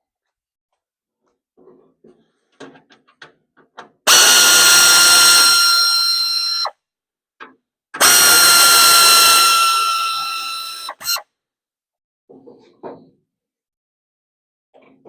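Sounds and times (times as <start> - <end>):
power drill whining: 4.1 - 6.7, 8.0 - 11.2.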